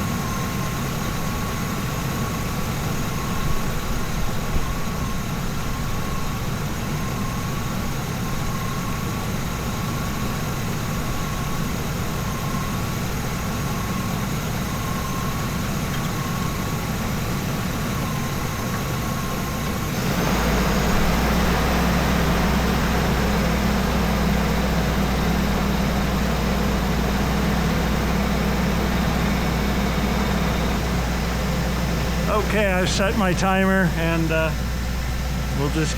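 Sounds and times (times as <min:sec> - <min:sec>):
ambulance engine idling: 0:00.0 - 0:35.9
low hum with hiss: 0:31.3 - 0:35.9.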